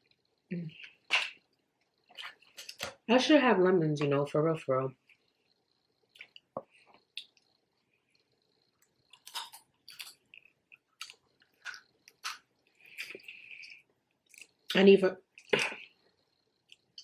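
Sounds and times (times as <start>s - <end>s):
person chewing with wet smacks: 0.8s - 3.0s, 6.1s - 14.7s, 16.6s - 17.0s.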